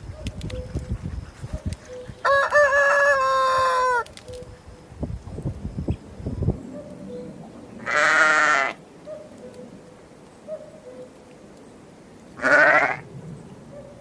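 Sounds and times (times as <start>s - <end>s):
farm animal bleating: 7.8s - 8.8s, 12.4s - 13.0s.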